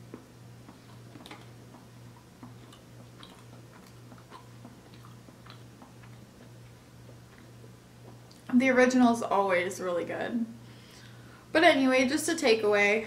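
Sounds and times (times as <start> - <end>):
person chewing doughnut: 0.0 - 8.5
steady low hum: 0.0 - 13.0.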